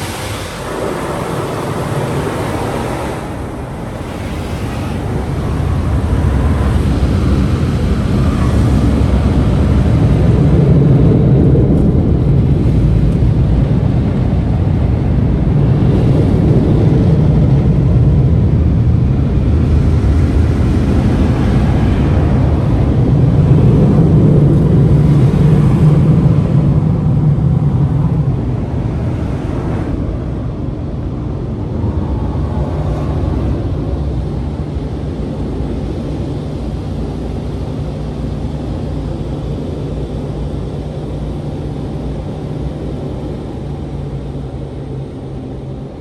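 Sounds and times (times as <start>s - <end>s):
car wash dryer blowers: 0.0s - 46.0s.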